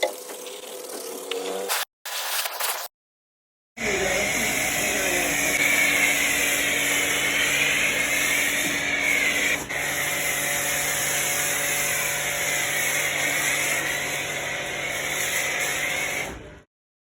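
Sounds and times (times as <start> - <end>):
cleaning machine motor whine: 3.8 - 16.6.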